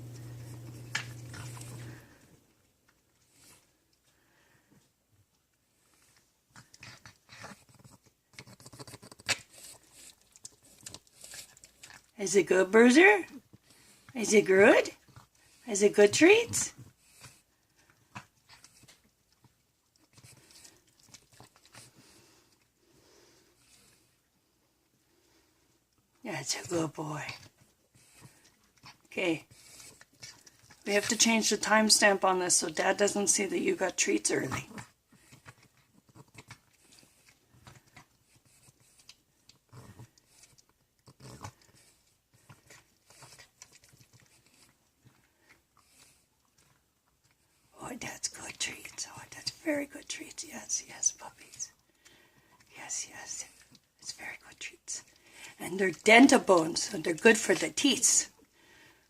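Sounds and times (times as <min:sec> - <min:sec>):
dog chewing hard treat: 0:00.0 - 0:02.4, 0:05.7 - 0:24.1, 0:26.6 - 0:32.8, 0:34.3 - 0:47.7.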